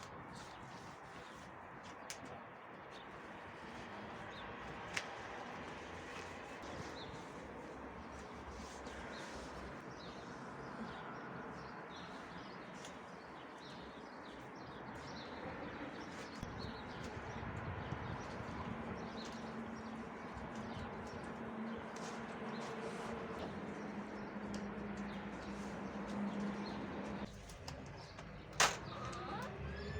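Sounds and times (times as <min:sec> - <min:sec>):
birds chirping: 0:06.4 - 0:29.9.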